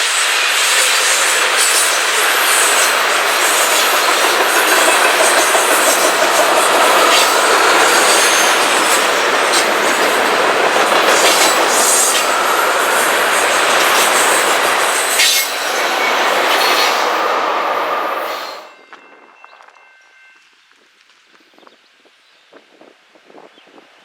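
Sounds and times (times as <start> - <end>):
train wheels rumbling on rail: 0.0 - 24.0
wheel squeal: 0.5 - 18.7.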